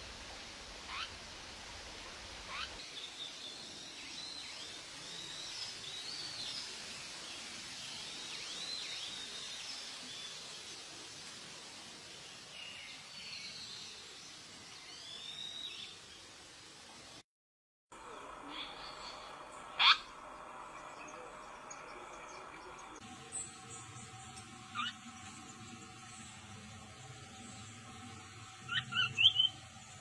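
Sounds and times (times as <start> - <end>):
outdoor hiss: 0.0 - 17.2, 18.0 - 30.0
downward swept bird calls: 0.9 - 1.2, 2.4 - 3.4, 18.1 - 30.0
birds chirping and whistling: 24.7 - 25.6, 28.6 - 29.8.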